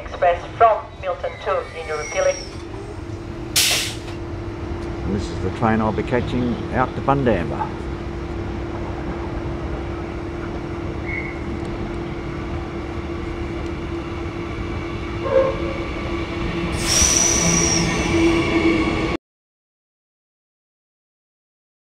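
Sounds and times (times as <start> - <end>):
electric train rumble and hum: 0.0 - 19.2
train brakes squealing: 0.8 - 4.2, 16.6 - 19.1.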